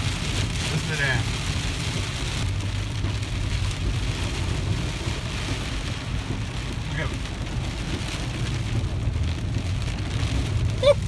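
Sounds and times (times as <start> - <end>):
heavy rain on a car: 0.0 - 11.0
low road rumble: 0.0 - 11.0.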